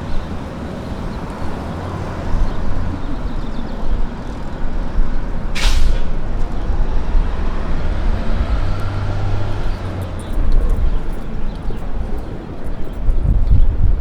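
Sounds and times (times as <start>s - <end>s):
heavy vehicle engine rumbling: 0.0s - 14.0s
air brakes hiss: 5.5s - 6.2s.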